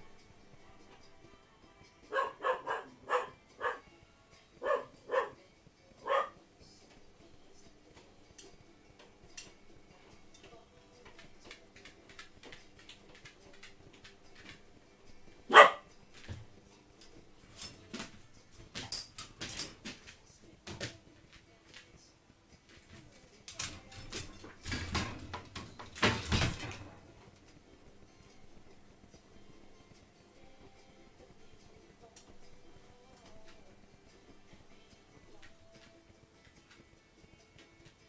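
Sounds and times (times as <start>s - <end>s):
dog barking: 2.1s - 3.9s, 4.6s - 5.4s, 6.0s - 6.4s, 15.5s - 15.9s.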